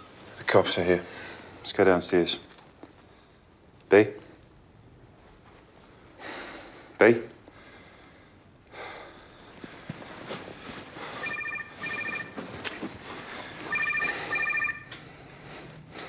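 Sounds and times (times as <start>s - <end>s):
telephone ringing: 11.2s - 12.6s, 13.6s - 15.0s.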